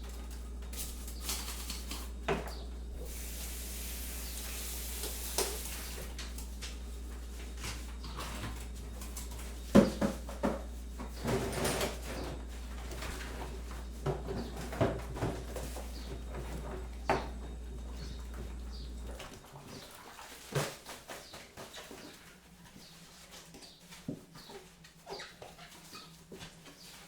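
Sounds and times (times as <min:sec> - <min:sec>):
steady low hum: 0:00.0 - 0:19.9
utensils and crockery clinking: 0:07.6 - 0:19.1.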